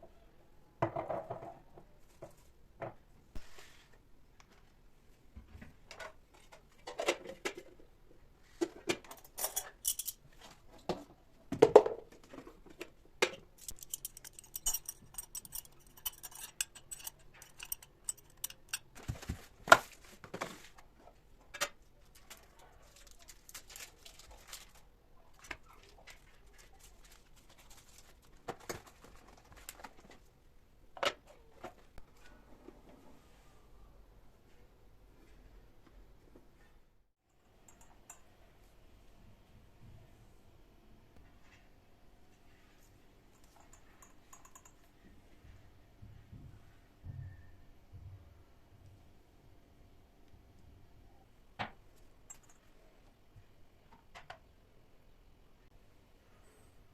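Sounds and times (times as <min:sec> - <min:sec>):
kitchenware clinking and knocking: 0:00.8 - 0:01.6, 0:10.9 - 0:19.4.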